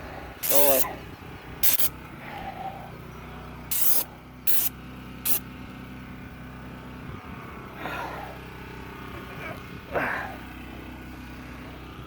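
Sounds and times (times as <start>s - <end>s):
sprayer hissing bursts: 0.4s - 0.8s, 1.6s - 1.9s, 3.7s - 4.7s.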